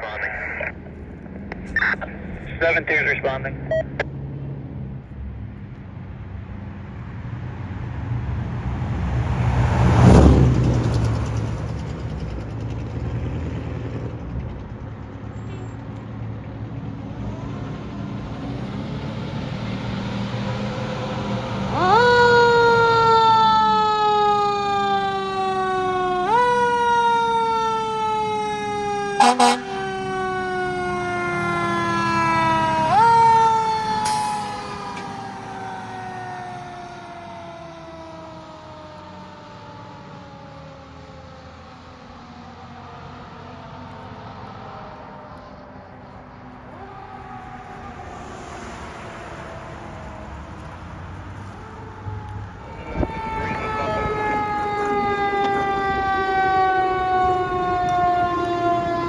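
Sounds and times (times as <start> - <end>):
diesel engine rumble: 0.0 - 59.0
siren wailing: 20.4 - 59.0
horn blast: 29.2 - 30.0.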